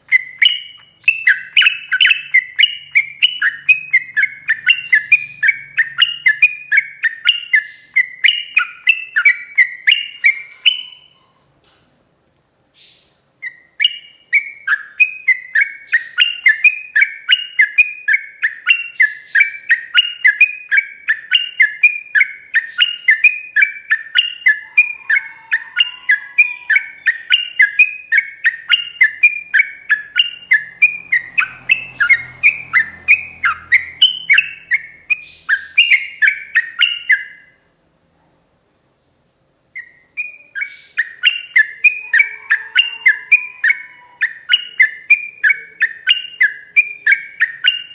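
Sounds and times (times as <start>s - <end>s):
bird singing fast chirping song: 0.0s - 11.1s, 12.8s - 37.5s, 39.8s - 47.9s.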